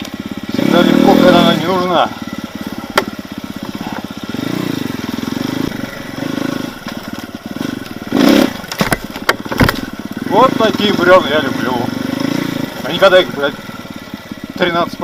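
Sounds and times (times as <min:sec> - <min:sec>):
motorcycle engine running: 0:00.0 - 0:15.0
sharp knocks: 0:02.9 - 0:03.2, 0:08.4 - 0:09.9.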